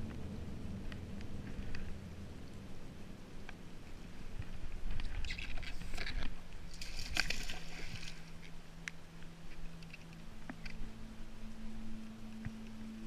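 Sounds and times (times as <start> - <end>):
steady low hum: 0.0 - 13.0
water sloshing around a kayak: 5.0 - 8.6.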